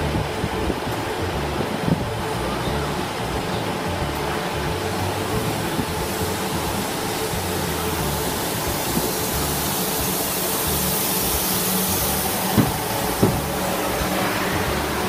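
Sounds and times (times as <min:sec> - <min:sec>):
electric train rumbling and hissing: 0:00.0 - 0:15.0
low drone: 0:00.0 - 0:15.0
sharp knock: 0:12.6 - 0:13.5.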